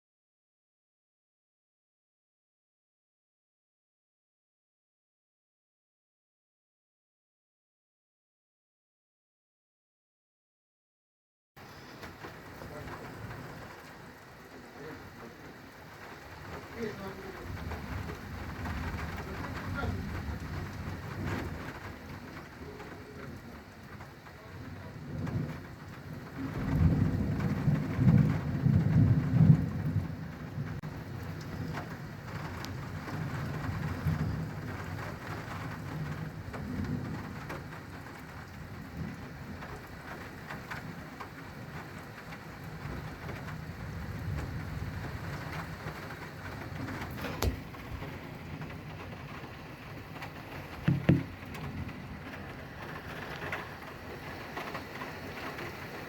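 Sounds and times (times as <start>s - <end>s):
steady rain: 11.6s - 56.0s
thunder rumbling: 11.6s - 56.0s
sharp knocks: 50.8s - 51.6s.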